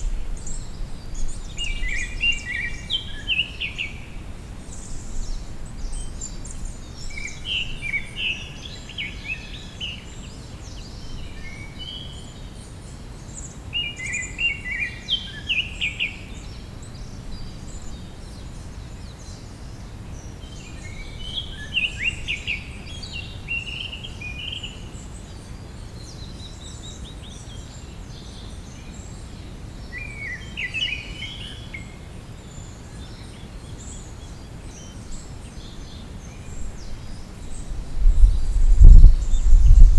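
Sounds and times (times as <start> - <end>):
songbird chirping: 20.2 - 39.9.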